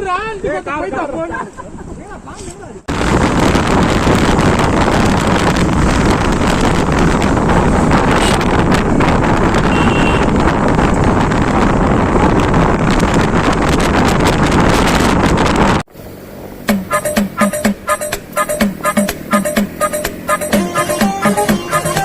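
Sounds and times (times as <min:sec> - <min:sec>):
motorcycle road noise: 0:02.4 - 0:22.0
wind rush on microphone: 0:02.6 - 0:15.9.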